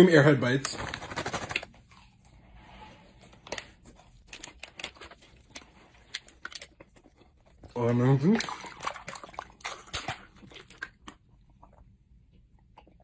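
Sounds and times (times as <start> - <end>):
plastic bag crinkling: 0.0 - 1.8.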